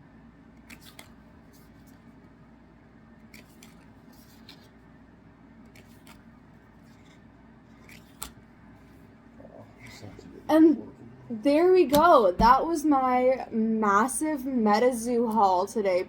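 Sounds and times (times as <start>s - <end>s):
faint room hum: 0.0s - 16.0s
cards sliding and tapping: 0.6s - 2.1s, 3.3s - 4.8s, 5.7s - 8.4s.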